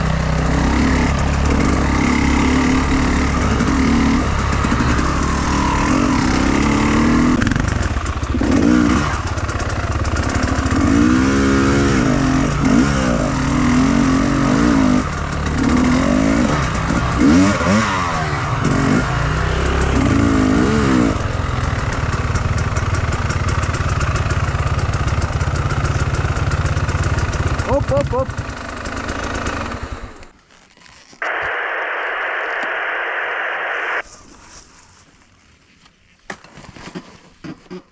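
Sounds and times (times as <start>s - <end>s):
motorcycle engine revving: 0.0s - 30.3s.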